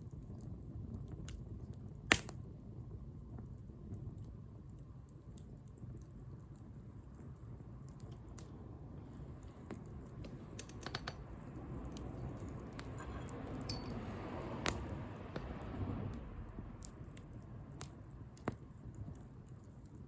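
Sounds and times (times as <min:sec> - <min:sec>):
bonfire crackling and popping: 0:00.0 - 0:20.0
low steady rumble: 0:00.0 - 0:20.0.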